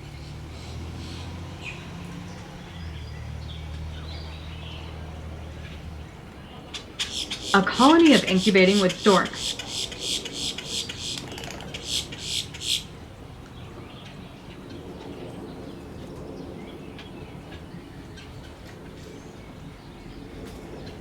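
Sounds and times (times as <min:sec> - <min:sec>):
low background noise: 0:00.0 - 0:21.0
harsh raspy bird calls: 0:06.7 - 0:13.0.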